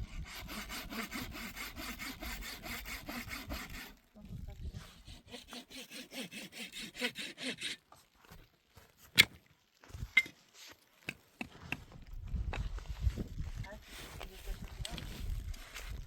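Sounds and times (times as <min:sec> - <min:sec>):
hand saw cutting wood: 0:00.0 - 0:04.0, 0:04.8 - 0:07.9.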